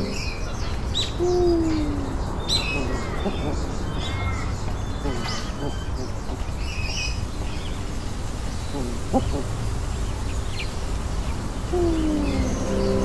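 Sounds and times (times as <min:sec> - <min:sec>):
bird calls and chirps: 0:00.0 - 0:13.0
held musical tones: 0:11.8 - 0:13.0.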